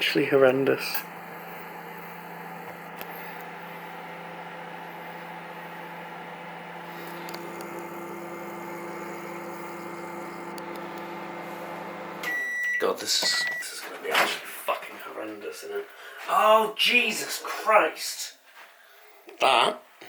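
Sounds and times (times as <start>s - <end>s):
microwave oven humming: 0.0s - 14.4s.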